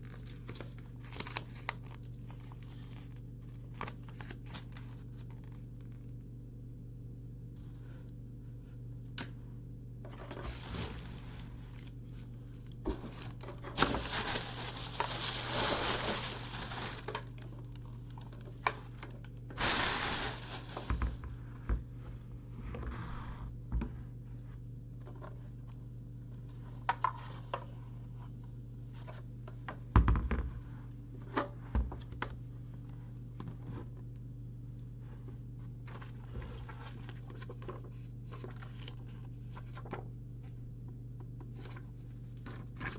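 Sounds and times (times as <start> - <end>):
packing material tearing and crinkling: 0.0 - 5.7, 10.4 - 18.4, 19.6 - 21.2
steady low hum: 4.8 - 29.9
rustling and scraping: 10.1 - 17.4, 19.6 - 24.0.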